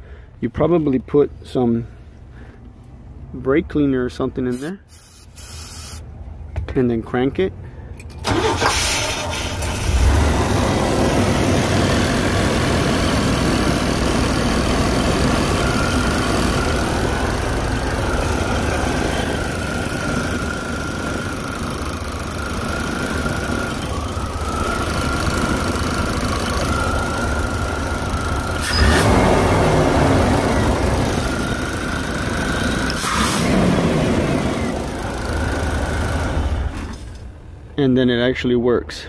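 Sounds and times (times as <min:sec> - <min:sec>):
car engine cranking and running: 0:07.9 - 0:37.5
thin steady whine: 0:13.7 - 0:33.6.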